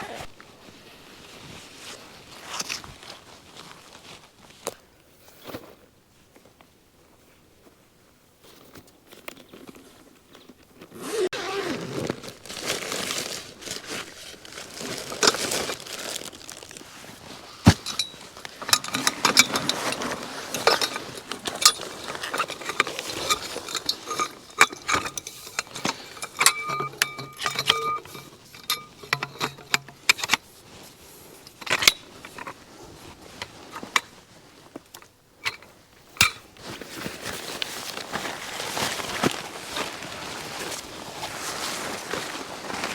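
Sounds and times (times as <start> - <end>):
rustling: 0.0 - 5.8, 8.4 - 42.9
hard objects clinking and knocking: 17.7 - 30.4.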